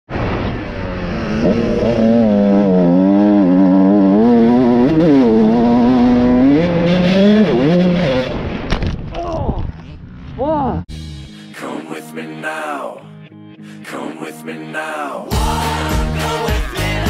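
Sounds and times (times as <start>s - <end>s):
motorcycle engine at high revs: 0.5s - 8.6s.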